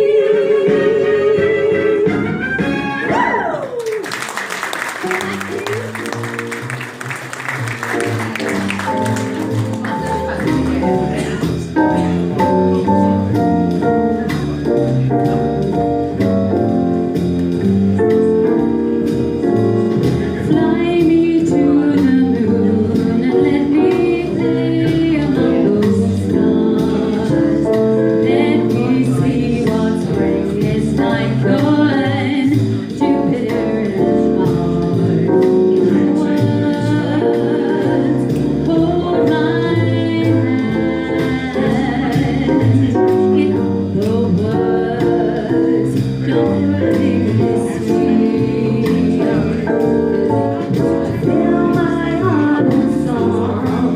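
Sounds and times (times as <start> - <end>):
vocal duo singing: 0.0 - 2.4, 20.3 - 53.9
instrumental accompaniment: 0.0 - 53.9.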